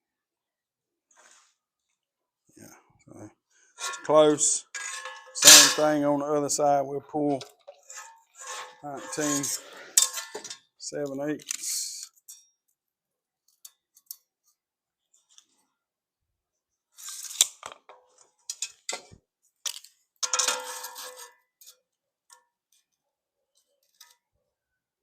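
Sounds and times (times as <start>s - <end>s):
tools clattering: 3.8s - 6.2s, 7.2s - 10.7s, 17.1s - 21.8s
tools clicking on steel plate: 4.8s - 6.0s, 7.4s - 10.6s, 19.7s - 21.8s.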